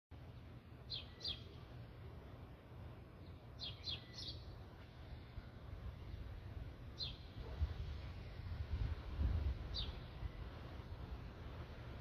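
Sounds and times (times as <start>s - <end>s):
small bird chirping: 0.8s - 1.8s, 3.2s - 4.7s, 6.9s - 7.5s, 9.6s - 10.8s
steady low rumble: 4.4s - 12.0s.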